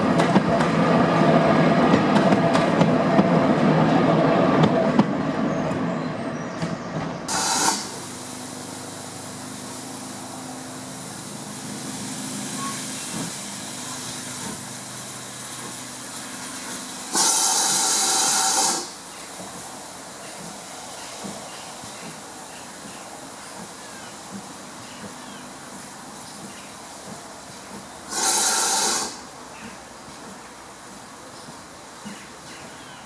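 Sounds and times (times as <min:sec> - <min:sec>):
train rumbling: 0:00.0 - 0:33.0
steady steam hiss: 0:07.2 - 0:33.0
steam blast: 0:07.3 - 0:24.8, 0:28.0 - 0:29.3.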